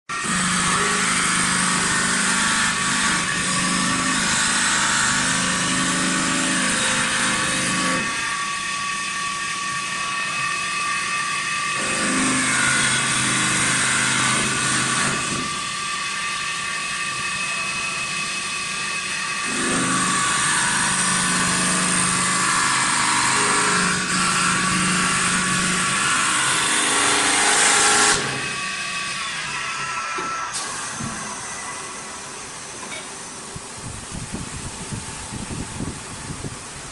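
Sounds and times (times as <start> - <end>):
gritty wood cutting noise: 0.1 - 8.4, 19.3 - 31.4.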